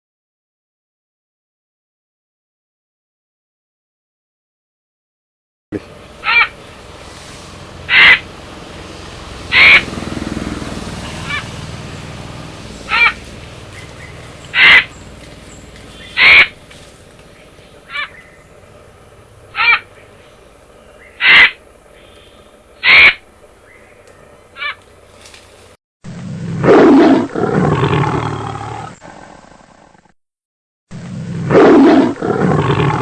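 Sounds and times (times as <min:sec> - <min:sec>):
high-pitched animal call: 0:05.8 - 0:08.4, 0:09.4 - 0:10.3, 0:11.0 - 0:11.7, 0:12.7 - 0:16.9, 0:17.5 - 0:18.7, 0:19.4 - 0:20.2, 0:21.0 - 0:23.3, 0:24.6 - 0:24.9.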